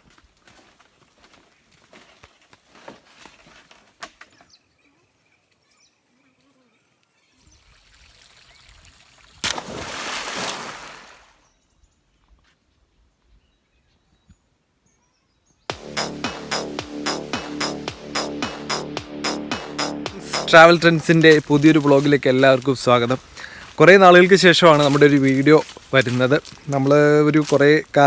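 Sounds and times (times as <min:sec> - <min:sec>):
water trickling and splashing: 0:07.4 - 0:11.4
loud splash: 0:09.4 - 0:11.3.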